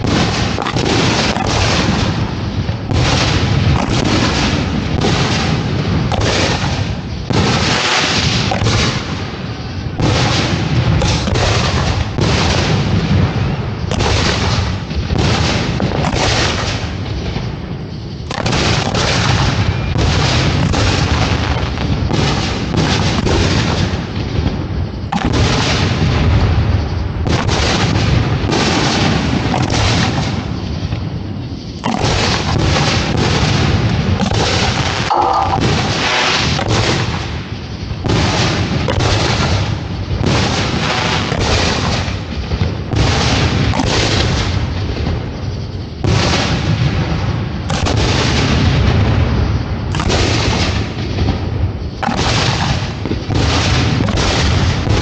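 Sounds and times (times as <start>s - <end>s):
fireworks booming and cracking: 0.0s - 55.0s.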